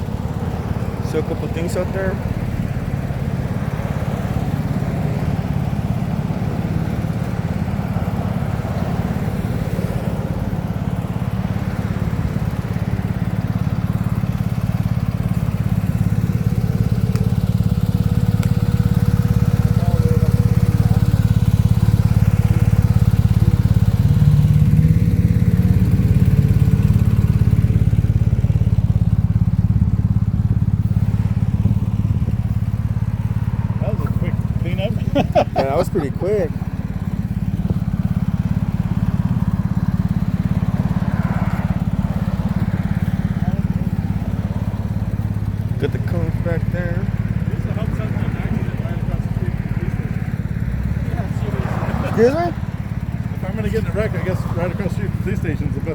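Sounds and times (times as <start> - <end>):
vehicle engine droning: 0.0 - 55.9.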